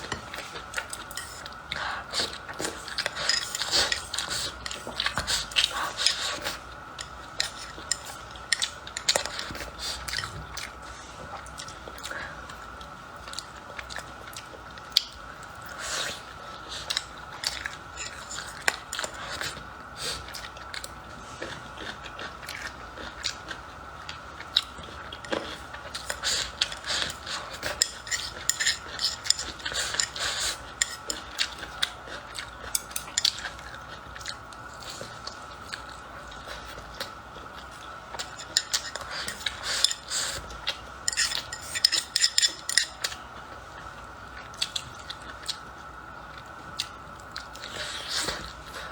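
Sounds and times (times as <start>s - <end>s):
utensils scraping a bowl: 41.1s - 43.0s.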